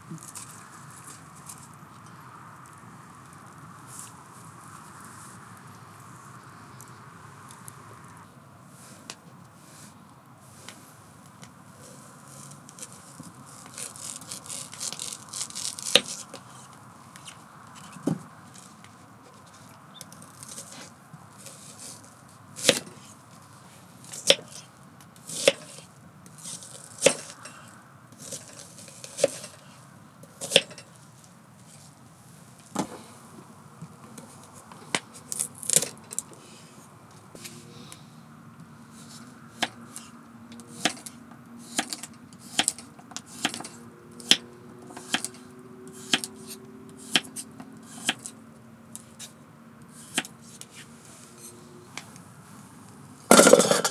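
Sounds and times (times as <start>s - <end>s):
knife chopping on wooden board: 41.6s - 48.3s.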